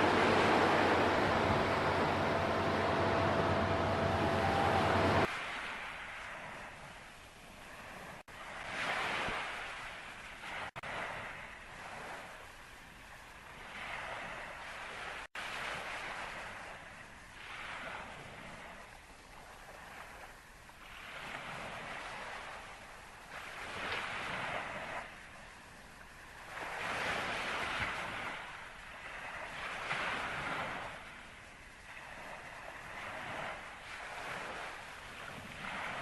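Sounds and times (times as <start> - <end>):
waves washing in: 0.0 - 36.0.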